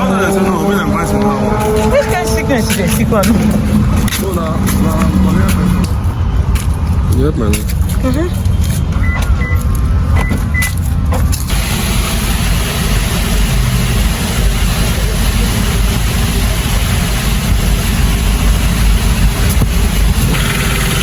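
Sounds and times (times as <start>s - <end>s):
motor vehicle rumbling: 0.0s - 21.0s
broad rushing noise: 10.7s - 21.0s.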